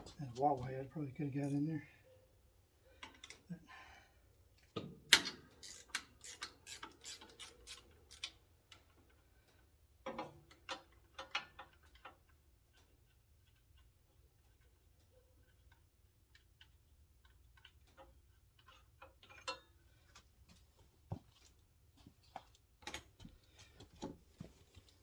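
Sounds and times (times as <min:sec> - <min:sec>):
wrench metallic clicks: 0:05.1 - 0:08.8.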